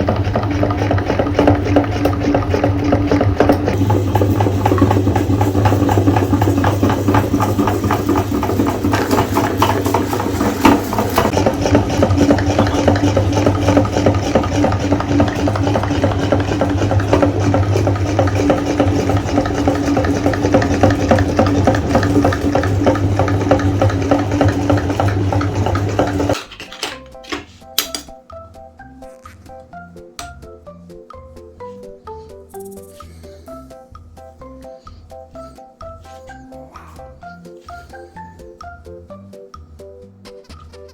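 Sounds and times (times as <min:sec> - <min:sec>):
cookies crunching in grinder: 0:00.0 - 0:26.4
electric meat grinder motor hum: 0:00.0 - 0:26.4.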